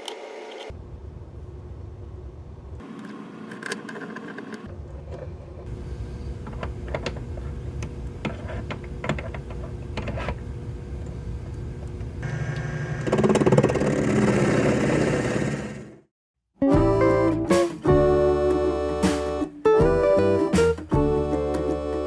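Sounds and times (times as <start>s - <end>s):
lathe motor whirring: 12.2s - 16.0s.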